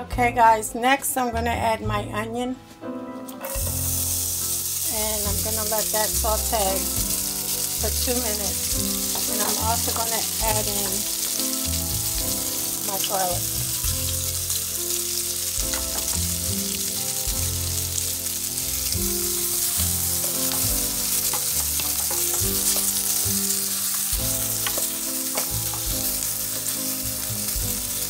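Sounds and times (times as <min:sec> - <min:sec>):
onion and garlic sizzling in oil: 0:03.4 - 0:28.0
wooden spoon scraping a pan: 0:04.8 - 0:12.2, 0:18.6 - 0:27.6.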